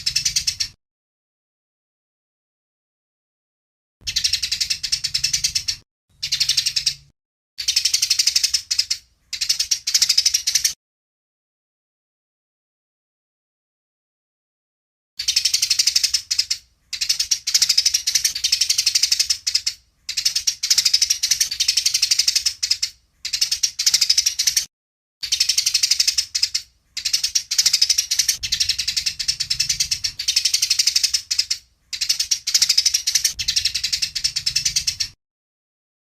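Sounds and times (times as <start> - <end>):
sparrows chattering: 0.0 - 0.8, 4.0 - 10.8, 15.2 - 35.2.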